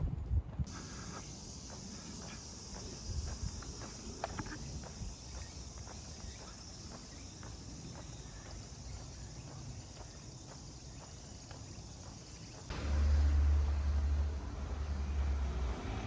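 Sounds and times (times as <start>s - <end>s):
footsteps walking: 0.7s - 14.5s
insects chirring: 0.7s - 16.0s.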